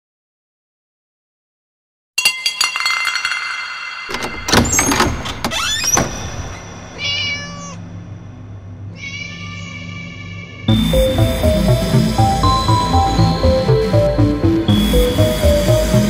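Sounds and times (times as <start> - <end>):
clattering knocks: 2.2 - 6.8
low hum: 2.6 - 16.0
cat meowing: 7.0 - 7.8, 8.9 - 10.7.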